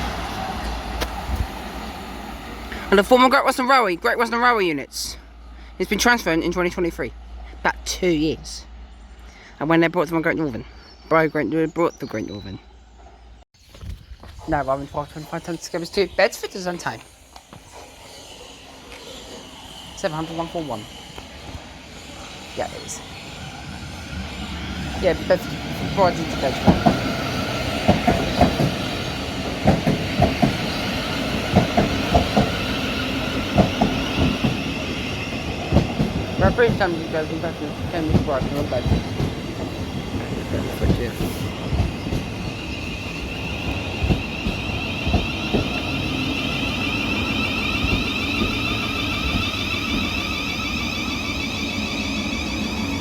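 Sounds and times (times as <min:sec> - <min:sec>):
train rumble: 0:00.0 - 0:13.4, 0:14.2 - 0:53.0
train wheels clicking over rail joints: 0:22.4 - 0:53.0.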